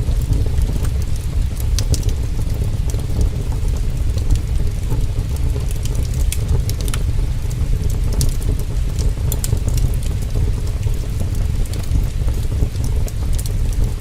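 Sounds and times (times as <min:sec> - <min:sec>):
heavy rain rumbling: 0:00.0 - 0:14.0
wood fire crackling and popping: 0:00.0 - 0:14.0.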